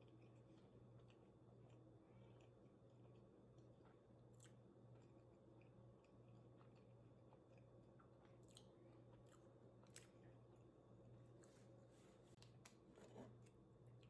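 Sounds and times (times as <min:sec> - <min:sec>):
chewing food: 0:00.0 - 0:10.7
low steady hum: 0:00.0 - 0:14.0.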